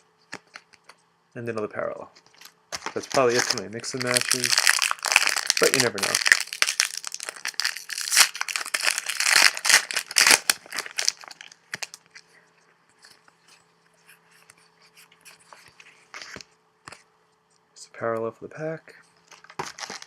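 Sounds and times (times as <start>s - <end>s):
card pack wrapper crinkling: 2.3s - 12.2s, 19.3s - 20.0s.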